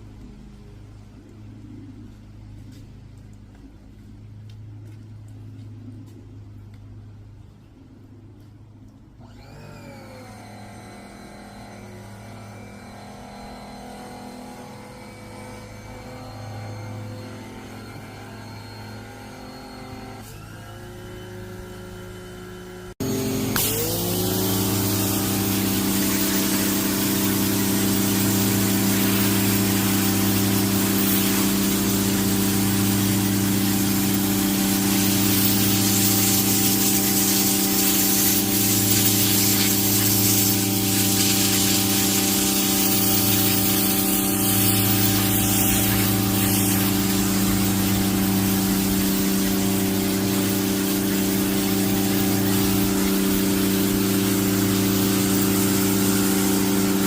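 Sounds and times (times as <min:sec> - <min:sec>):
pressure washer motor running: 0:09.2 - 0:57.0
water jet hissing on pavement: 0:23.0 - 0:57.0.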